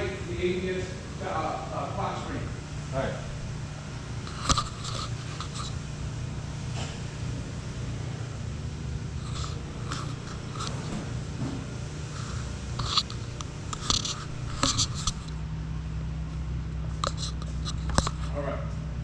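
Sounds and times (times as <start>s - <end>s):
steady low hum: 0.0s - 19.0s
metal clicks and scrapes of tools: 12.8s - 15.3s, 17.0s - 18.3s.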